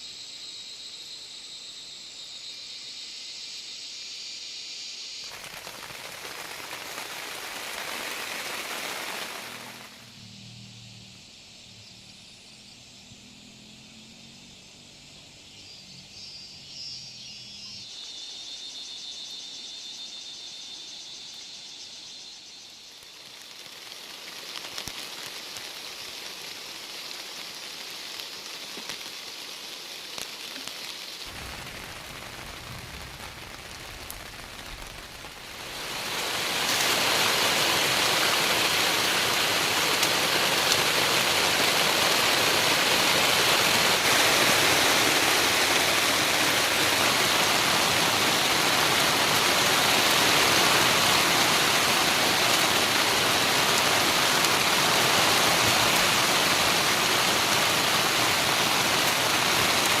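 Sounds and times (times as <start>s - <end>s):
rushing water: 5.3s - 10.1s, 23.2s - 60.0s.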